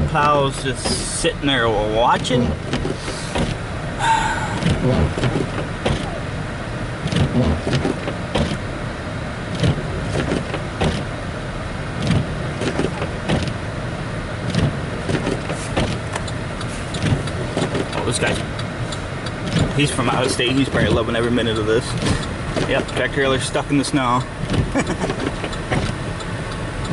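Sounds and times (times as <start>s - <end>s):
car cabin rumble: 0.0s - 26.9s
knocks and thumps: 2.2s - 3.6s, 4.6s - 6.1s, 7.0s - 8.6s, 12.0s - 13.6s, 19.4s - 21.0s.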